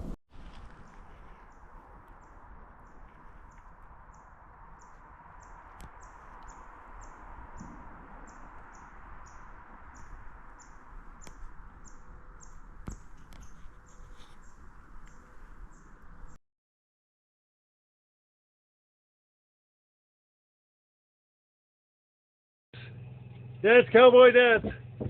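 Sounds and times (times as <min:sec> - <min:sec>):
faint clicks: 0:11.2 - 0:16.1.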